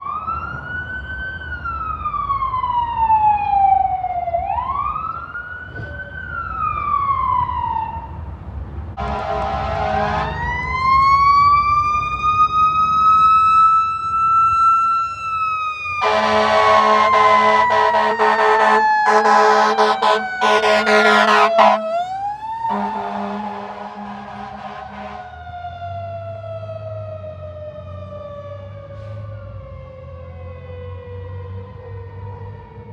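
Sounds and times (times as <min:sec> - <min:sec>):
fire engine horn blasts: 0:09.0 - 0:10.6, 0:16.0 - 0:25.4
electronic siren wailing: 0:12.4 - 0:27.5.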